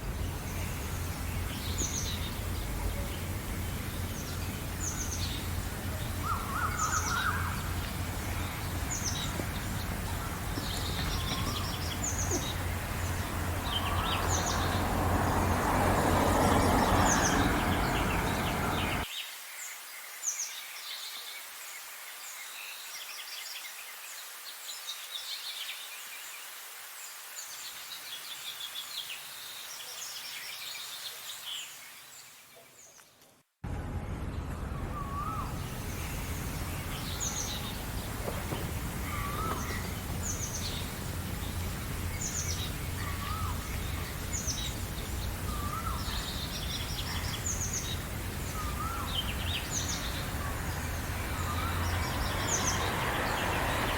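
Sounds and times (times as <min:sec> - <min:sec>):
songbirds chirping and trilling: 0:00.0 - 0:21.5, 0:34.4 - 0:53.9.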